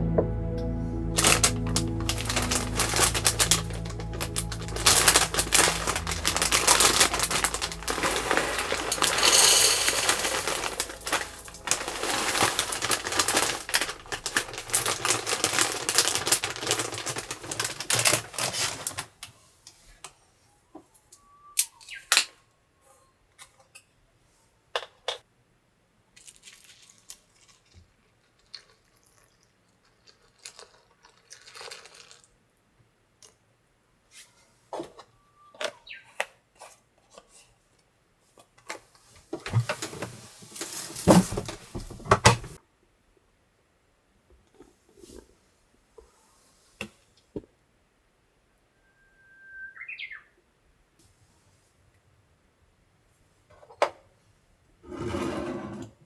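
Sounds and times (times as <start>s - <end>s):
background music: 0.0s - 16.1s
dense crackling: 0.0s - 18.4s.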